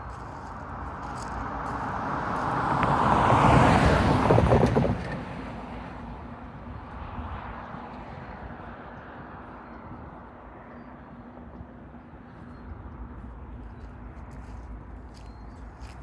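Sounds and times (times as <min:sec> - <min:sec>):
road vehicle passing by: 0:00.1 - 0:15.9
knocks over crossing: 0:03.4 - 0:05.5.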